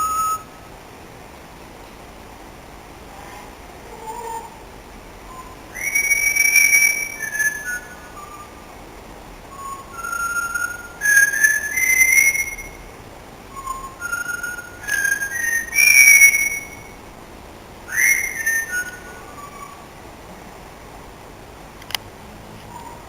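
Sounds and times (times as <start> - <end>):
parrot whistling a tune: 0.0 - 0.7, 5.3 - 8.6, 9.5 - 12.9, 13.5 - 17.0, 17.9 - 19.8.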